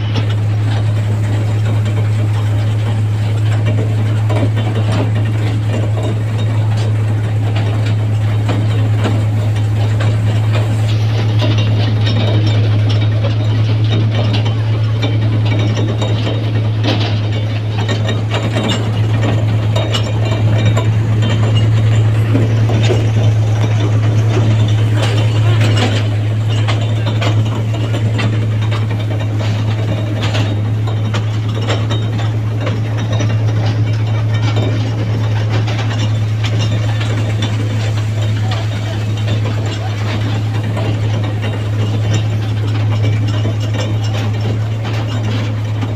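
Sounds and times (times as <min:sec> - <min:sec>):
carriages rattling: 0:00.0 - 0:45.9
toy train running: 0:16.9 - 0:45.9.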